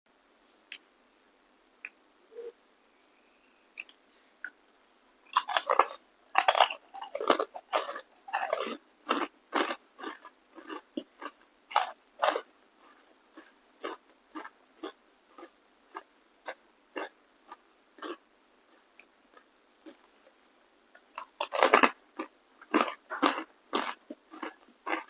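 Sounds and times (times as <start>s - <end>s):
crunchy chewing of crisp food: 5.3s - 25.0s.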